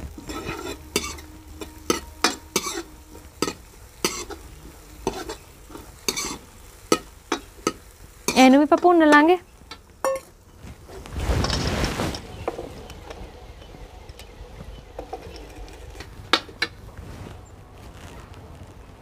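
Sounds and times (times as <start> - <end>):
faint outdoor background: 0.0 - 19.0
rustle of handling: 9.5 - 13.8, 14.5 - 19.0.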